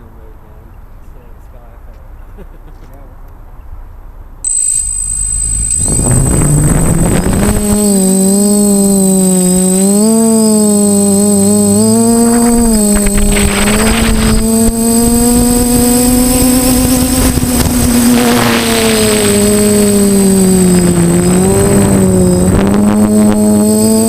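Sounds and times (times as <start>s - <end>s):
drone propellers whining: 4.4s - 24.0s
thin steady high tone: 4.4s - 24.0s
rushing wind noise: 5.5s - 9.8s, 10.5s - 24.0s.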